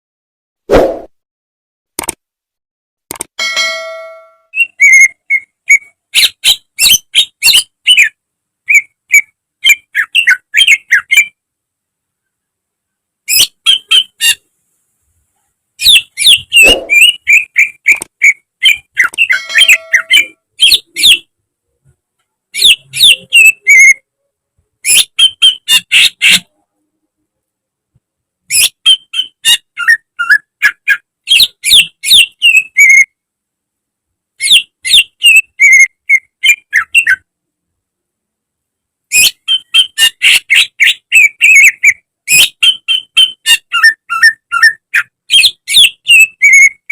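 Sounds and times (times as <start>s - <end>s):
bird whistling and chattering: 4.5s - 11.4s, 13.3s - 14.4s, 15.8s - 21.3s, 22.5s - 24.0s, 24.8s - 26.5s, 28.5s - 33.1s, 34.4s - 37.2s, 39.1s - 46.9s.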